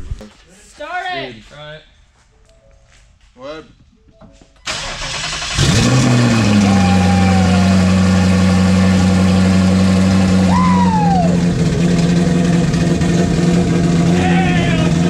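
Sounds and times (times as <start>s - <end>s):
car engine starting and idling: 4.6s - 15.0s.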